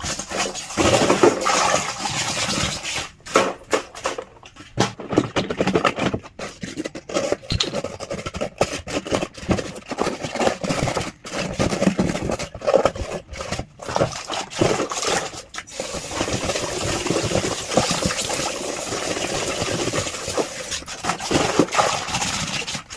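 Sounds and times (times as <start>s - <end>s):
tap water running: 0.0s - 4.6s, 13.4s - 22.9s
cartons rubbing and scraping: 0.0s - 22.9s.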